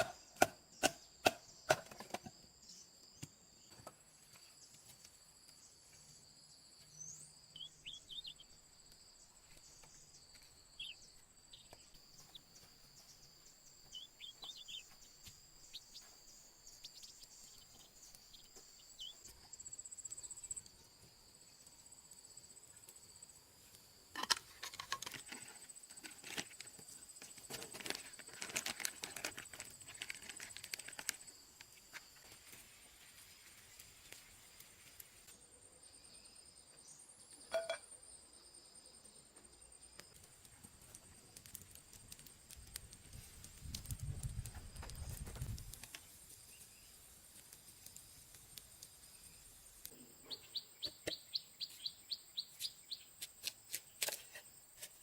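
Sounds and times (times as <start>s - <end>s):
insects buzzing: 0.0s - 55.0s
leaves crackling and rustling: 26.1s - 35.3s, 40.3s - 49.9s.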